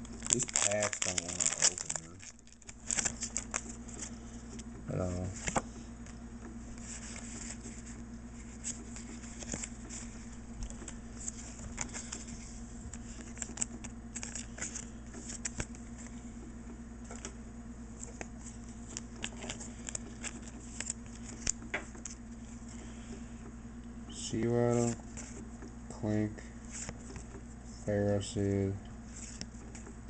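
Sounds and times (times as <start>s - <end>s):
foil wrapper crinkling and tearing: 0.0s - 4.1s, 13.0s - 15.6s
cards being handled: 0.0s - 16.2s, 17.0s - 22.9s, 24.4s - 25.8s, 26.6s - 27.5s, 29.1s - 30.0s.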